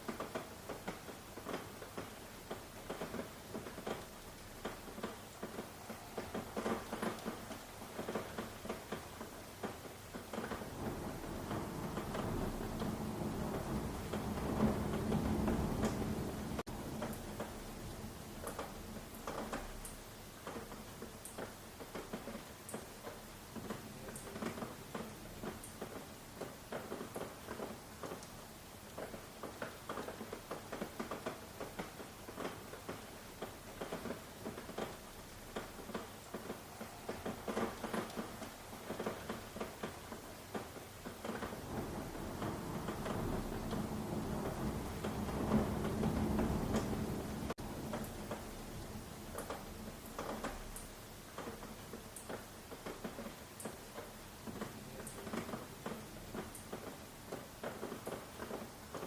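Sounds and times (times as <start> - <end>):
rain drops tapping a surface: 0.0 - 59.0
rain hiss: 0.0 - 59.0.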